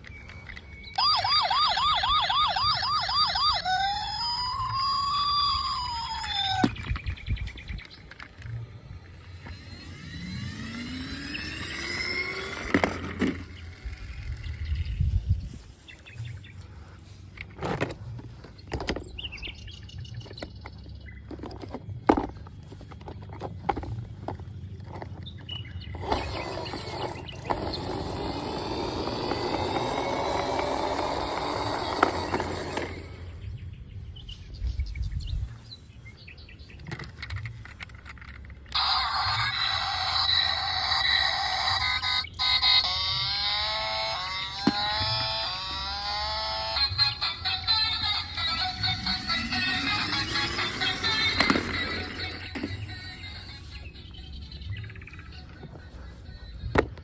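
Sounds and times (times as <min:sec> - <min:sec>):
electronic toy tones: 0:00.0 - 0:07.0, 0:26.0 - 0:33.3, 0:38.7 - 0:54.5
toy whirring: 0:00.0 - 0:15.4, 0:25.9 - 0:33.4, 0:36.9 - 0:54.3.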